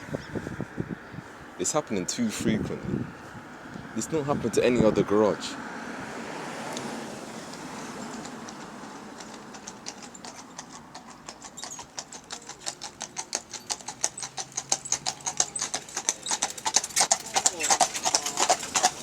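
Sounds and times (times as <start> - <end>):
horse hooves clip-clopping on road: 6.1 - 19.0.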